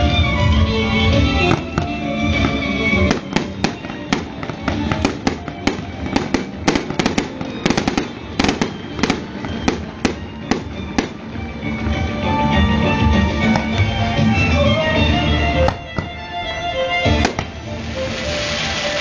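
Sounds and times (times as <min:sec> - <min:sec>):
music playing: 0:00.0 - 0:19.0
fireworks bursting: 0:01.3 - 0:12.1, 0:15.4 - 0:19.0.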